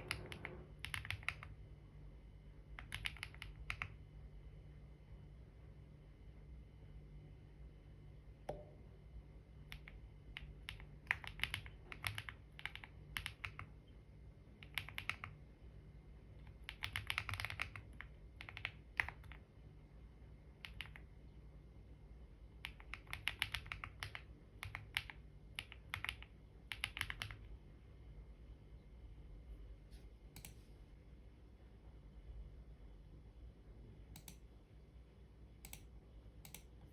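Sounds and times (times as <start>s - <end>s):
typing on computer keyboard: 0.0s - 1.6s, 2.8s - 4.0s, 9.7s - 13.8s, 14.6s - 15.4s, 16.5s - 19.4s, 20.6s - 21.0s, 22.6s - 27.5s
faint low hum: 0.0s - 36.9s.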